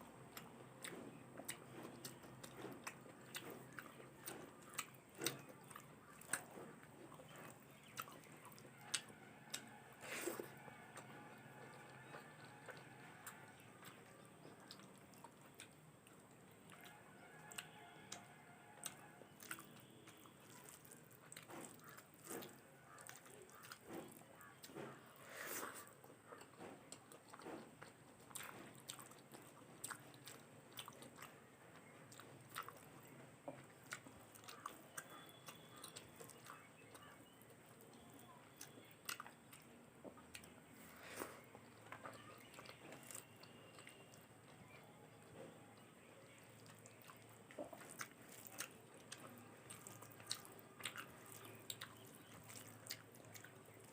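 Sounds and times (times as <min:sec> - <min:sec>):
person chewing: 0:00.0 - 0:53.9
small clicks and crunches: 0:19.4 - 0:25.1.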